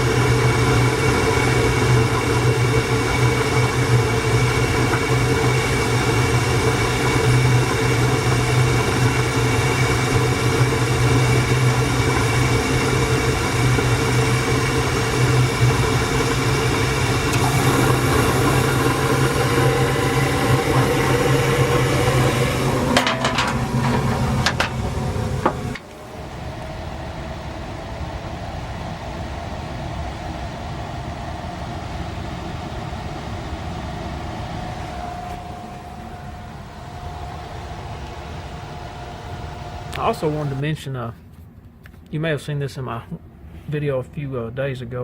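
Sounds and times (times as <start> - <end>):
gas furnace humming: 0.0 - 41.5
knocks: 22.9 - 25.8.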